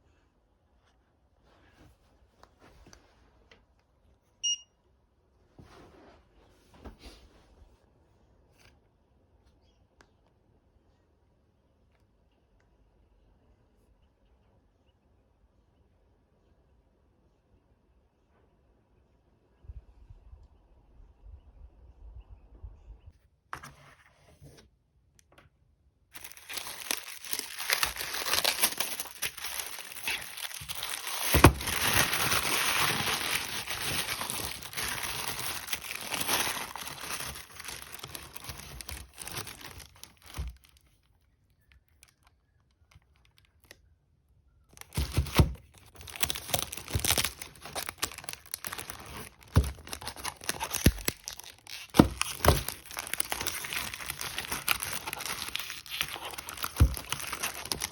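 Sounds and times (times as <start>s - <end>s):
packaging crinkling and tearing: 26.1s - 40.9s, 44.7s - 57.9s.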